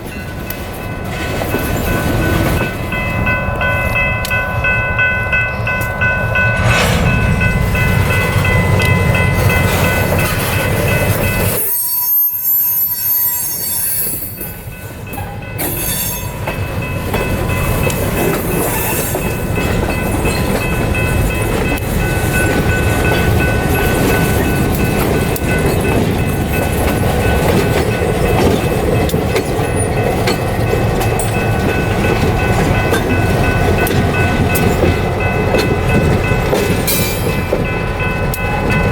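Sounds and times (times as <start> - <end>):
diesel locomotive engine running: 5.3 - 11.5.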